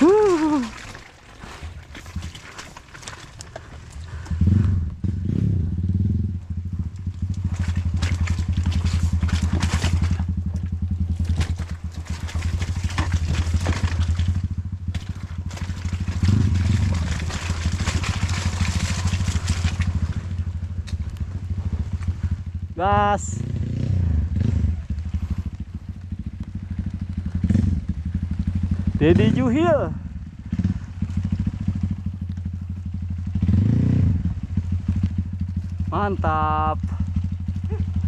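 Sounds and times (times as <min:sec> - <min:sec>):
motorcycle engine under load: 0:00.0 - 0:38.0
clattering of bike: 0:06.0 - 0:21.2.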